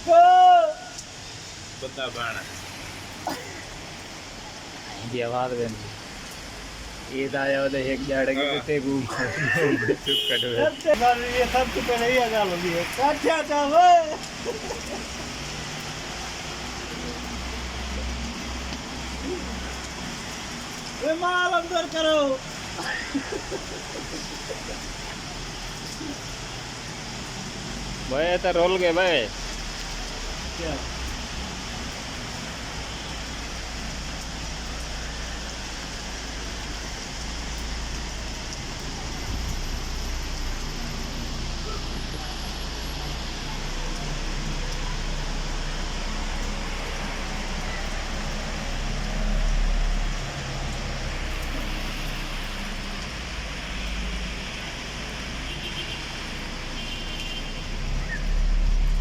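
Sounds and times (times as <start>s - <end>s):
rain hiss: 0.0s - 59.0s
vehicle road noise: 0.0s - 59.0s.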